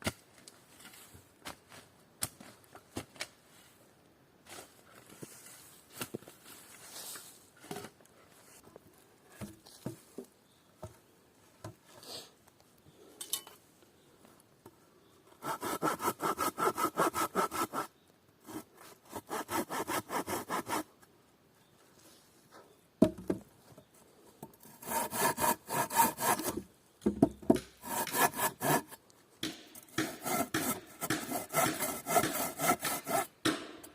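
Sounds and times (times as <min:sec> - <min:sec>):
handsaw cutting wood: 0:15.4 - 0:17.9, 0:18.5 - 0:20.8, 0:24.7 - 0:26.6, 0:27.8 - 0:29.0, 0:29.9 - 0:33.3.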